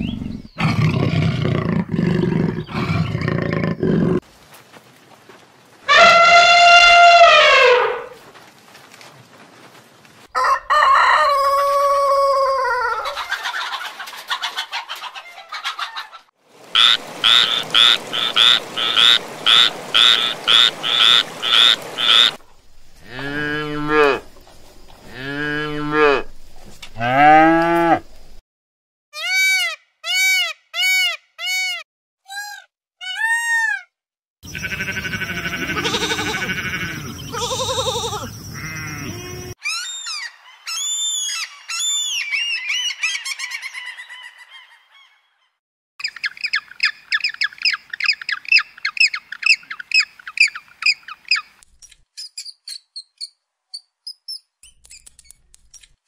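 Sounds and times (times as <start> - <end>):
farm animal calls: 34.4 - 45.1.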